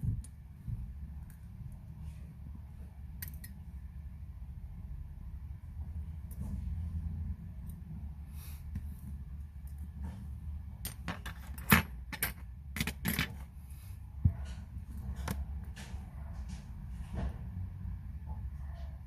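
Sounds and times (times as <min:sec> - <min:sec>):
steady low hum: 0:00.0 - 0:19.0
small metal tools clicking: 0:03.2 - 0:03.6.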